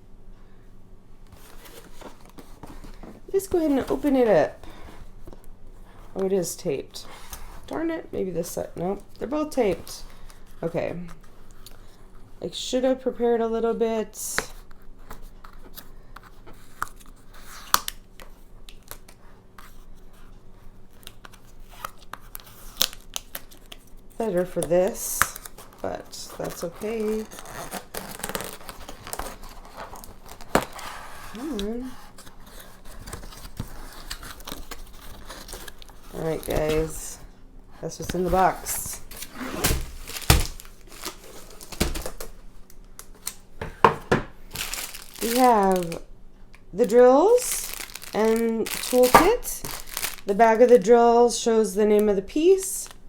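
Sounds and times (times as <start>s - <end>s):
packing tape tearing: 14.5s - 19.9s, 21.0s - 37.2s, 38.0s - 43.4s, 44.5s - 46.0s, 46.8s - 50.8s.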